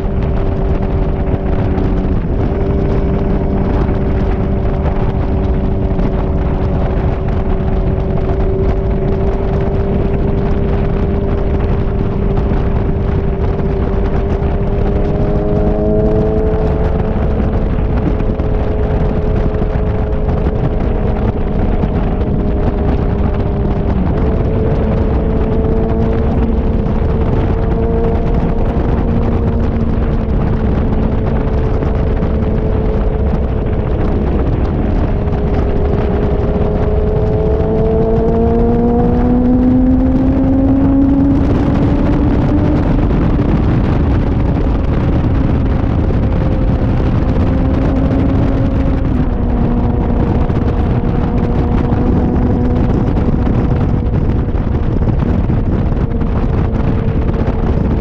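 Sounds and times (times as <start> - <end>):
motorcycle engine cruising: 0.0 - 58.0
wind rushing over microphone: 0.0 - 58.0.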